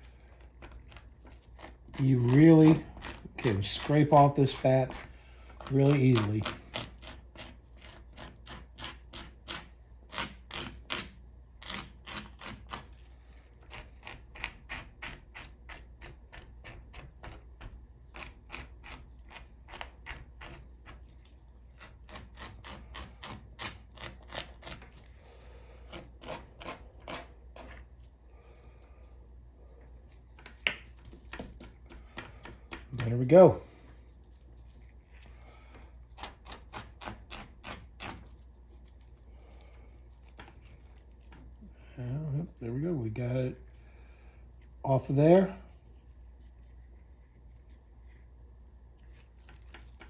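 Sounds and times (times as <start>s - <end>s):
plastic scraper scraping chicken skin: 0.0s - 28.0s, 36.1s - 41.6s.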